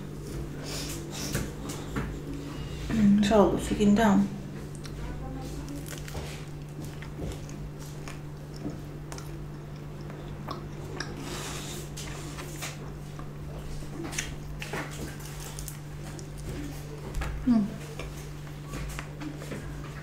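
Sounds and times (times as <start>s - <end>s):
steady low hum: 0.0s - 20.0s
person chewing food: 4.6s - 20.0s.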